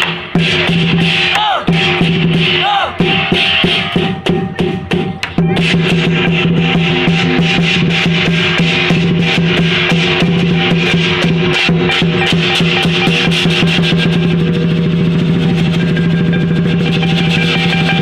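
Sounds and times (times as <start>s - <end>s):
cymbals clashing: 0.0s - 18.0s
drum beaten fast: 0.0s - 18.0s
steady ringing tone: 11.6s - 18.0s.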